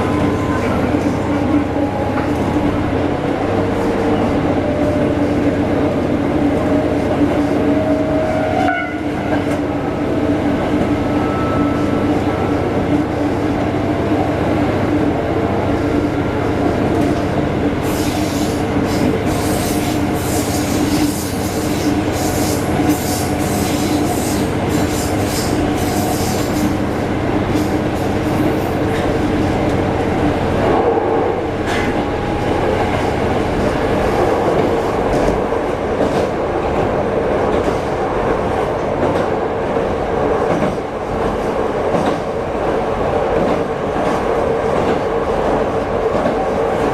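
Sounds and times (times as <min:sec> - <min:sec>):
railcar engine running: 0:00.0 - 0:46.9
train wheel clatter and clicks: 0:34.4 - 0:39.4, 0:40.3 - 0:46.9.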